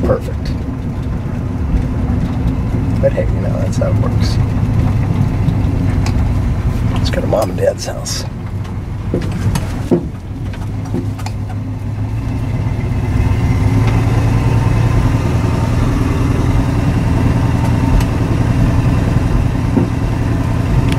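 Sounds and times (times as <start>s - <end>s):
car engine running: 0.0s - 20.9s.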